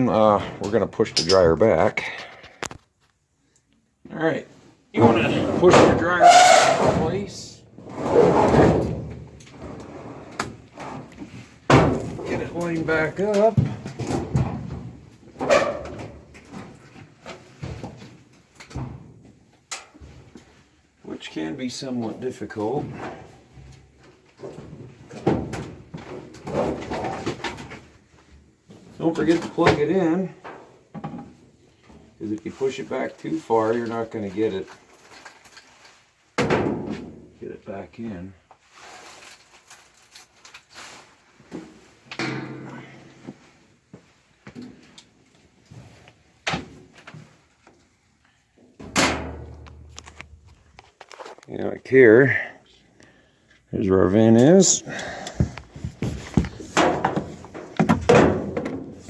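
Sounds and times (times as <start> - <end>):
dryer feet scraping on floor: 55.2 - 56.8.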